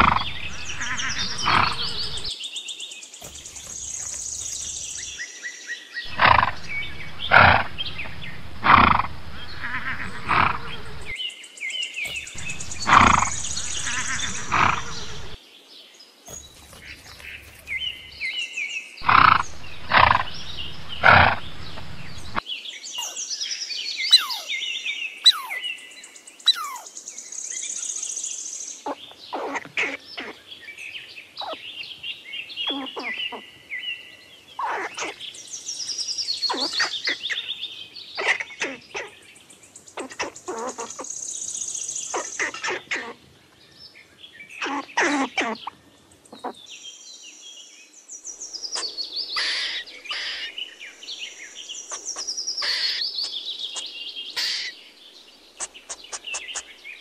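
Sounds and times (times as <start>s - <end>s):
zebras barking: 0.0s - 2.3s, 6.1s - 11.1s, 12.1s - 15.4s, 19.0s - 22.4s, 24.1s - 24.5s, 26.5s - 26.9s
birds chirping: 0.0s - 15.4s, 16.0s - 57.0s
short high chirps and clicks: 24.1s - 24.5s.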